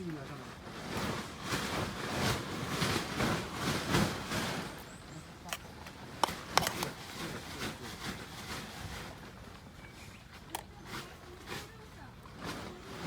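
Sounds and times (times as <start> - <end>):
rustling: 0.4 - 13.0
sharp clicks and knocks: 5.5 - 7.0.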